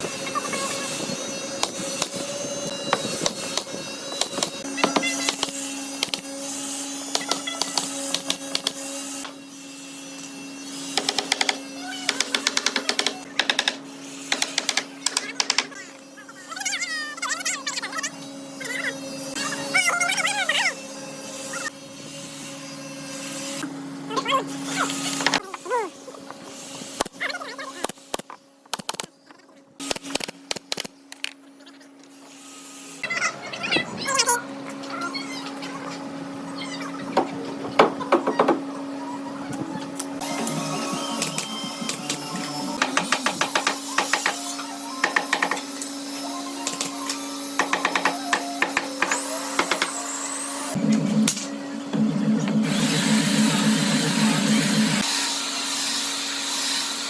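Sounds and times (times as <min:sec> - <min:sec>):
small electric motor humming: 0:00.0 - 0:28.6, 0:38.8 - 0:57.0
steady hum: 0:50.7 - 0:55.0.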